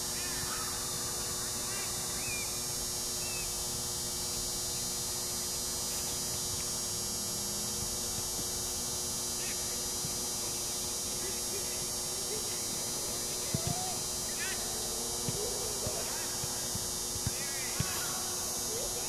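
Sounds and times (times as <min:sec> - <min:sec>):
constant low hum: 0:00.0 - 0:19.0
faint distant calls: 0:09.2 - 0:19.0.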